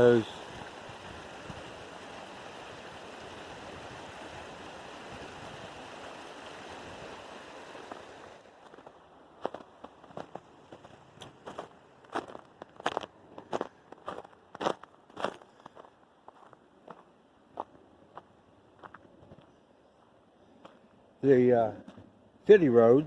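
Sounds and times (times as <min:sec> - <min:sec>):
creek rushing: 0:00.0 - 0:13.1
footsteps in melting snow: 0:07.6 - 0:19.6.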